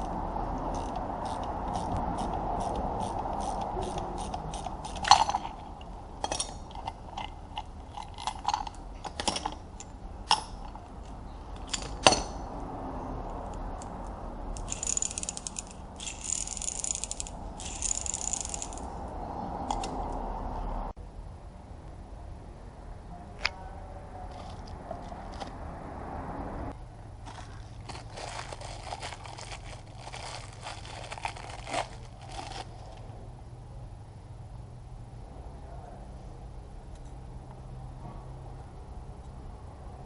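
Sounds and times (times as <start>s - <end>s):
ratchet wrench clicking: 0.0s - 10.5s, 14.5s - 18.9s
metal clinks and knocks: 0.7s - 12.5s, 14.6s - 18.9s.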